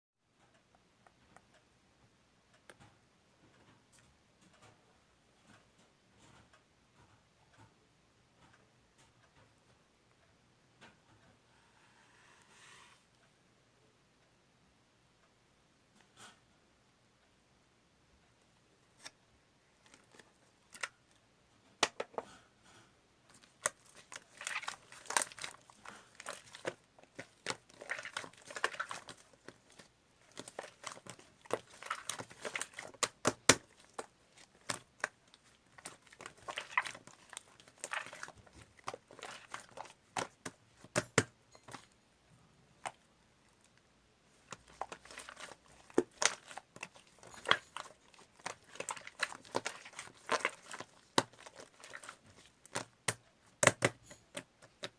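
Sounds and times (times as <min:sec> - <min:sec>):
slime squishing and popping: 0:23.3 - 0:41.9, 0:44.4 - 0:54.9.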